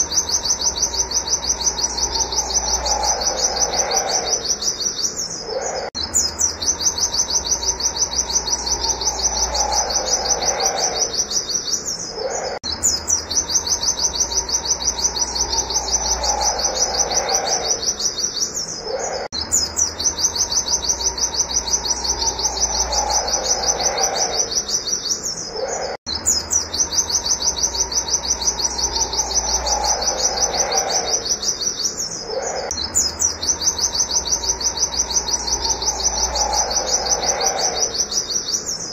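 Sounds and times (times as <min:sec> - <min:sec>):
lower bird warbling phrase: 0:00.0 - 0:05.9, 0:06.6 - 0:12.6, 0:13.6 - 0:19.3, 0:32.2 - 0:38.4
bird singing rapid high notes: 0:00.0 - 0:38.9.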